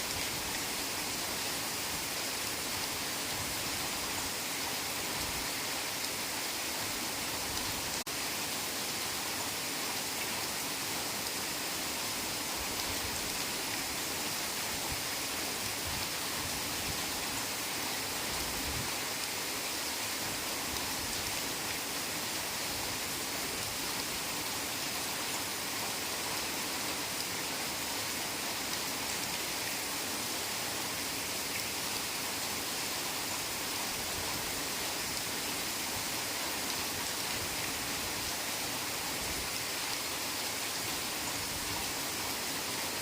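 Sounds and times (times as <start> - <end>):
heavy rain: 0.0 - 43.0.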